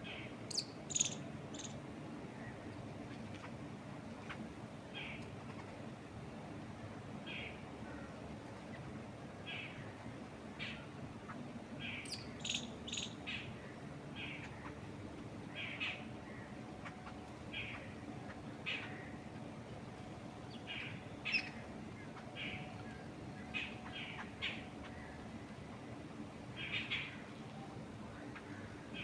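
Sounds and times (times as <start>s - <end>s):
birds chirping: 0.0s - 3.6s, 7.2s - 29.0s
wind through trees: 0.0s - 29.0s.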